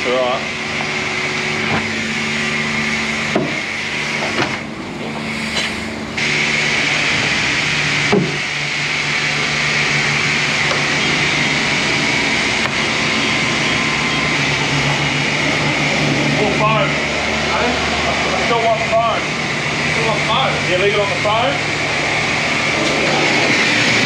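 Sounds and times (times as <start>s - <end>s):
pressure washer motor hum: 0.0s - 24.0s
water spray hissing: 3.5s - 14.0s.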